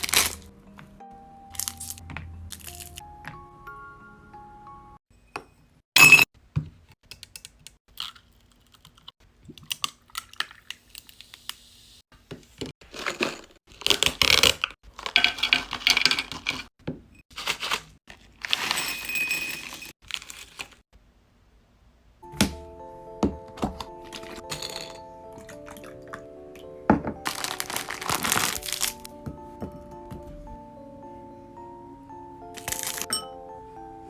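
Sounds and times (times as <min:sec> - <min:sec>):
packaging crinkling: 0:00.0 - 0:00.5, 0:27.2 - 0:29.1, 0:32.6 - 0:33.1
packaging tearing: 0:00.0 - 0:00.5, 0:27.2 - 0:29.1, 0:32.6 - 0:33.1.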